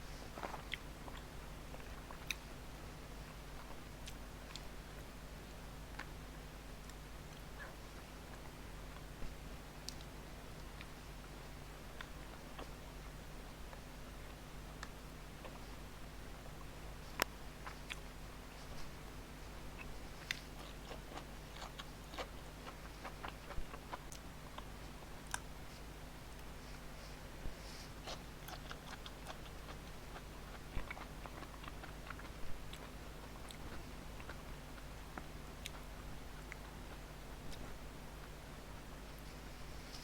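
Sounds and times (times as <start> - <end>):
faint low hum: 0.0 - 40.0
person chewing and biting: 19.8 - 24.7, 27.9 - 36.7.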